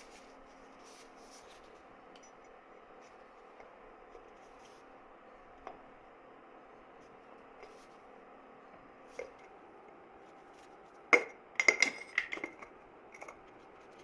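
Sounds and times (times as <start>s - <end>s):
faint rubbing and scratching: 0.0s - 1.9s, 2.9s - 5.0s.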